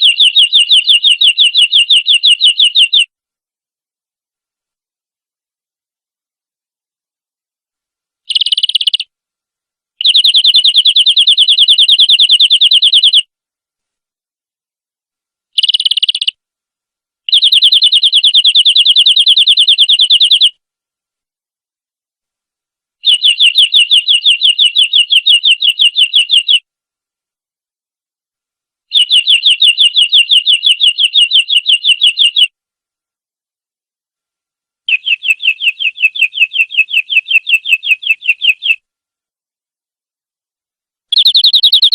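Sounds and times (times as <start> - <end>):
canary singing trills: 0.0 - 3.1, 8.3 - 9.1, 10.0 - 13.3, 15.6 - 16.4, 17.3 - 20.6, 23.0 - 26.6, 28.9 - 32.5, 34.9 - 38.8, 41.1 - 41.9.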